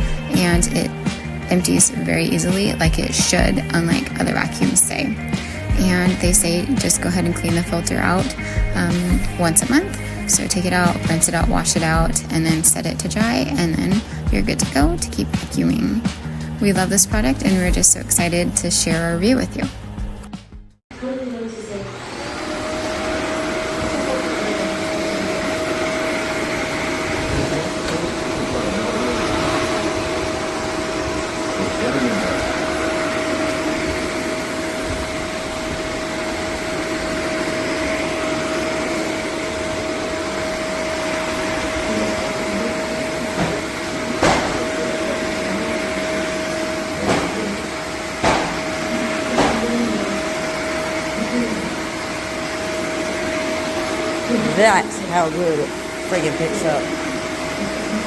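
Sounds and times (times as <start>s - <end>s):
upright vacuum cleaner whine: 0.0s - 20.2s, 20.9s - 58.0s.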